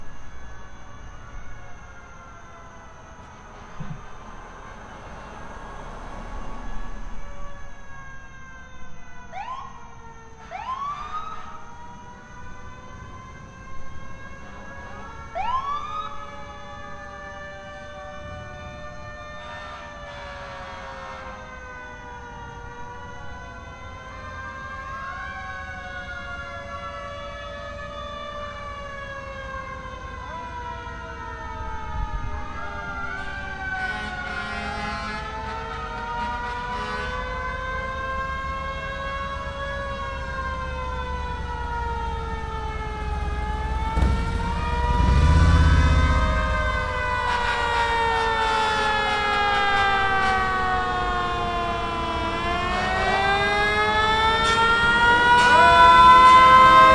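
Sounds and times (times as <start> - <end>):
fire engine sirens wailing: 0.0 - 56.9
loud low rumble: 41.6 - 47.8.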